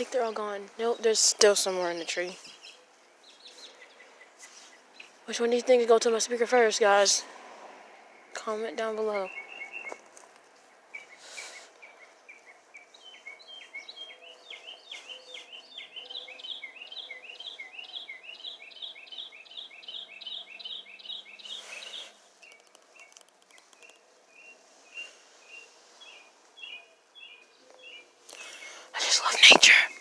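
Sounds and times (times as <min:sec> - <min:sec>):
small bird chirping: 0:08.4 - 0:30.0.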